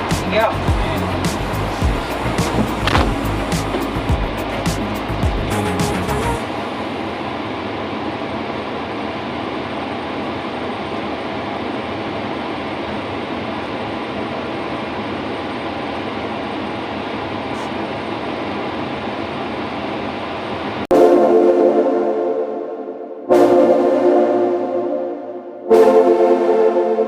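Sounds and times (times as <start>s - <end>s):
diesel engine running: 0.0s - 10.6s.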